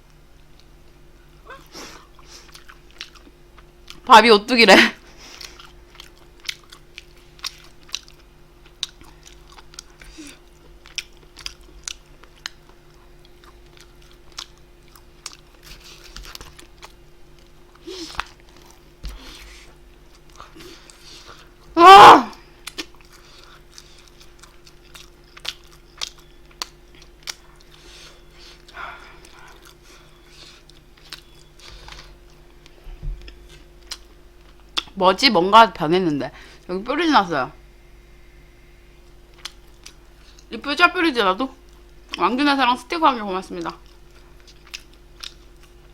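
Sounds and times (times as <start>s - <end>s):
faint steady hum: 0.0s - 45.9s
chewing with wet mouth clicks: 2.2s - 4.1s, 5.3s - 21.7s, 22.6s - 35.0s, 39.0s - 40.5s, 43.6s - 45.9s.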